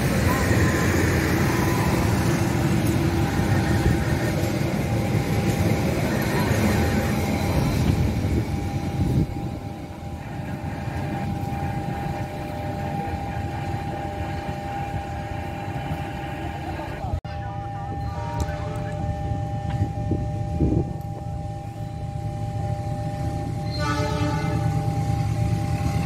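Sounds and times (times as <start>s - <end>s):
train wheels rumbling and clattering: 0.0s - 17.2s
steady high tone: 0.0s - 26.0s.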